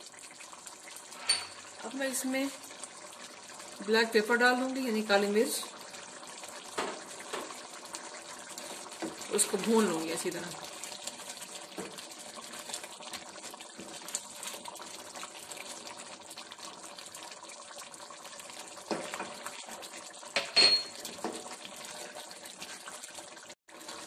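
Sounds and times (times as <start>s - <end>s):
food sizzling and bubbling: 0.0s - 24.0s
wooden spoon scraping a pan: 20.9s - 24.0s.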